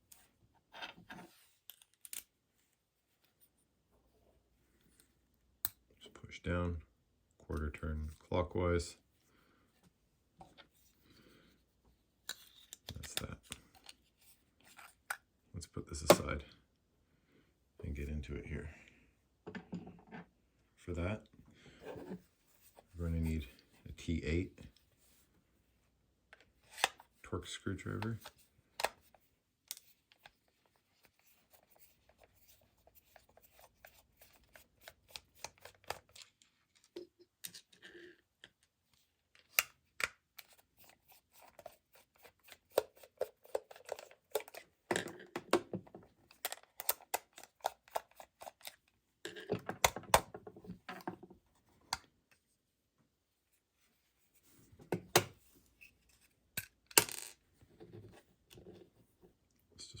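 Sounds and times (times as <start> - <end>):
screwdriver clicking and scraping screws: 46.3 - 48.9.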